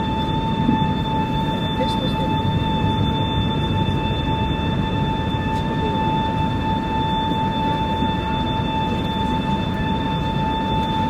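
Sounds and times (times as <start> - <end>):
high engine whine: 0.0 - 11.0
jet engine cabin rumble: 0.0 - 11.0.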